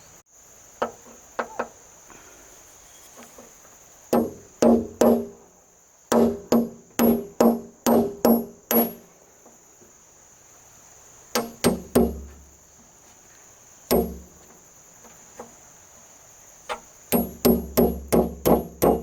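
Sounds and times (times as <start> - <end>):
insects buzzing: 0.0 - 19.0
hammer driving nails into wood: 4.2 - 5.3, 6.1 - 9.0, 11.4 - 12.4, 13.9 - 14.2, 16.7 - 19.0.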